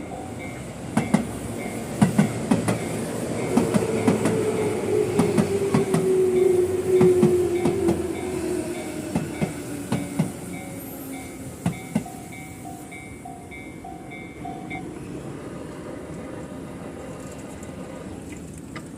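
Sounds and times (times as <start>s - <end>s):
wheels clicking over rail joints: 17.0s - 18.9s.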